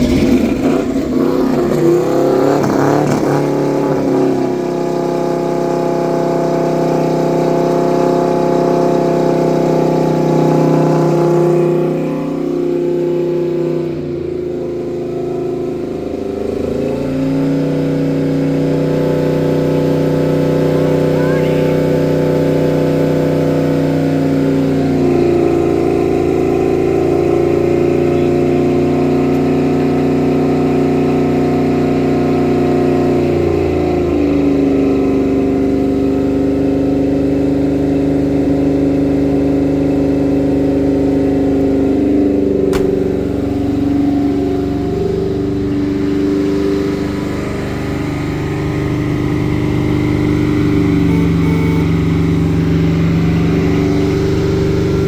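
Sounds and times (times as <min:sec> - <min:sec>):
pickup engine idling: 0:37.7 - 0:55.0.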